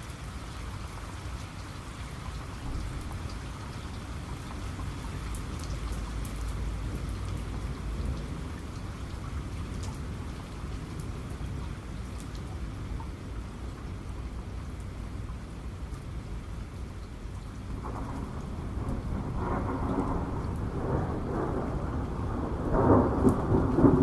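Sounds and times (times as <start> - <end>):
heavy rain falling: 0.0 - 24.0
raindrops ticking close by: 0.0 - 24.0
distant thunder rumbling: 17.7 - 24.0.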